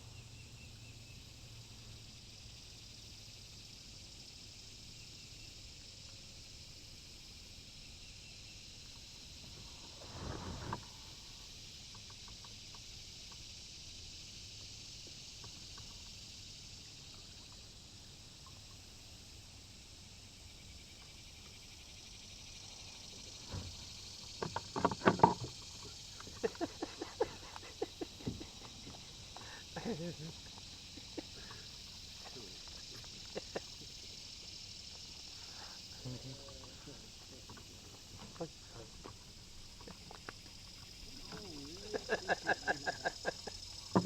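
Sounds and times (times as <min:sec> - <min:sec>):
steady high hiss: 0:00.0 - 0:44.0
kayak splash or scrape: 0:09.5 - 0:11.2.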